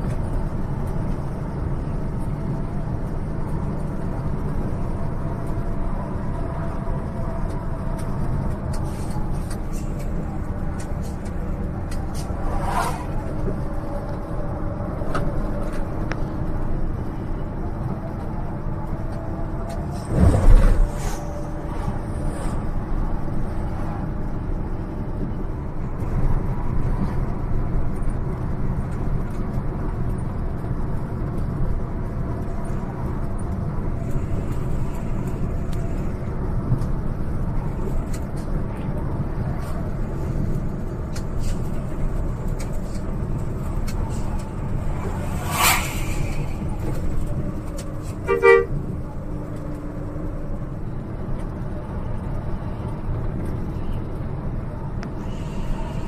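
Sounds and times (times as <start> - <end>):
bus engine and road rumble: 0.0 - 56.0
bus horn: 48.0 - 49.0.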